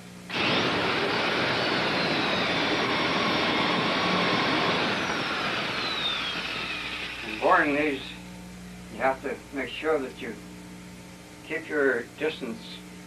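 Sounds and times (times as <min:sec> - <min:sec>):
electric drill whining: 0:00.3 - 0:08.0.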